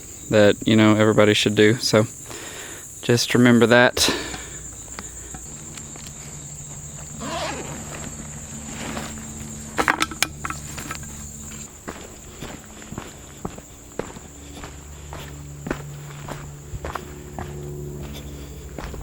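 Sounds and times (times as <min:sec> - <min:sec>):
insects droning: 0:00.0 - 0:19.0
footsteps on trail: 0:04.0 - 0:19.0.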